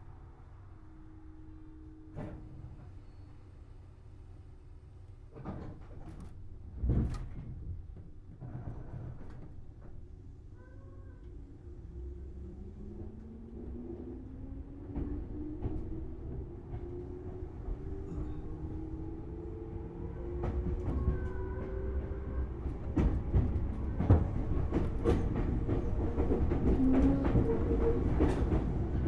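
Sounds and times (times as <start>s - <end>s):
wheels clacking over rail joints: 20.2s - 29.0s.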